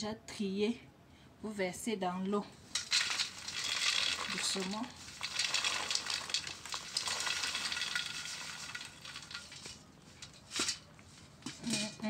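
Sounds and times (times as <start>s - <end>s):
seeds poured into water: 2.7s - 10.9s.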